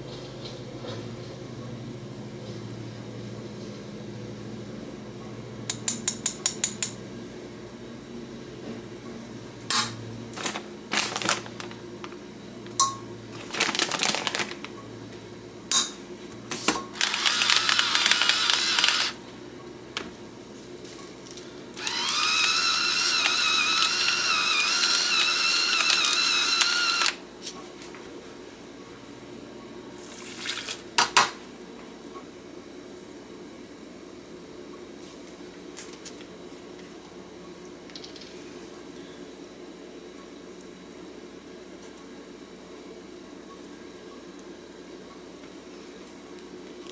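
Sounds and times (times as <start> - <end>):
kitchen appliance motor whining: 16.9 - 19.2, 21.7 - 27.2.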